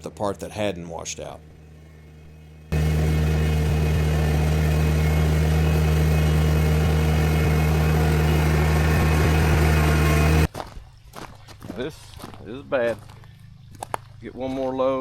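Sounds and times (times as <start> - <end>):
tractor diesel engine running: 1.5 - 10.5.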